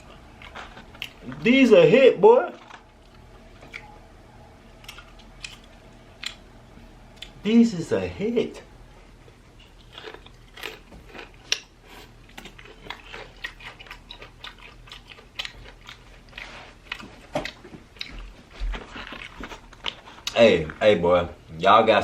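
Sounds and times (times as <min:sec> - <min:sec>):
chewing crunchy fried chicken: 0:00.0 - 0:03.9, 0:04.7 - 0:06.5, 0:09.2 - 0:20.9.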